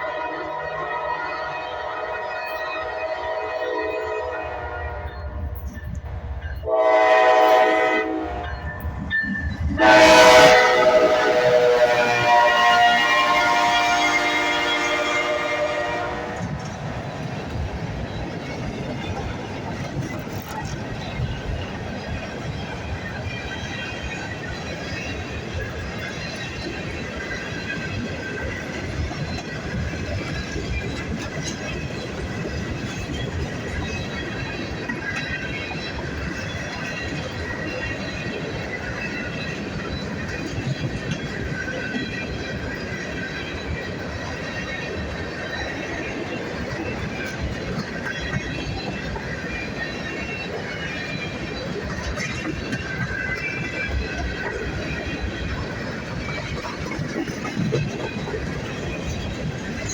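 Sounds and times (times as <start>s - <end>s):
locomotive air horn blasts: 0.0s - 5.6s, 6.6s - 8.6s, 9.7s - 16.7s
low rumble of train: 0.0s - 59.9s.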